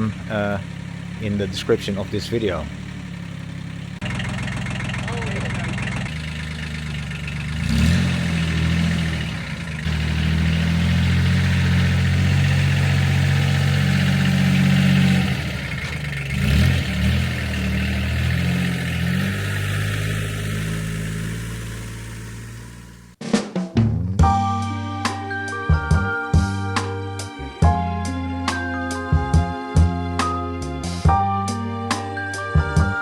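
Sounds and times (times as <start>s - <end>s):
tractor diesel engine running: 0.0s - 23.2s
music with drums: 23.2s - 33.0s.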